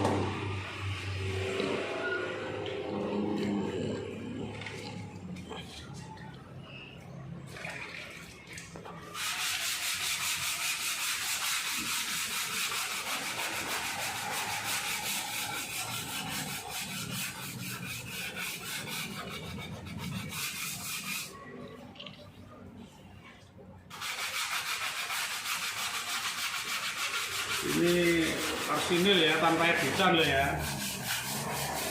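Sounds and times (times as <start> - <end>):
rasping sanding strokes: 9.0 - 21.4, 23.9 - 31.9.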